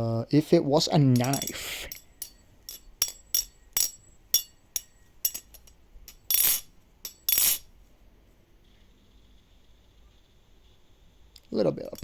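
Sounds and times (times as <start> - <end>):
knife clattering: 1.1 - 7.6
butterfly knife clacking: 1.2 - 7.6.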